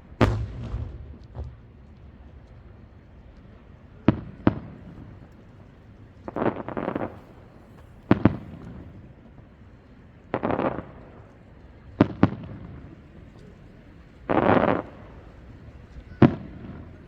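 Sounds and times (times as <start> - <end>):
fireworks bangs: 0.0 - 9.0, 10.4 - 11.3, 11.9 - 17.0
fireworks crackle: 0.0 - 17.0.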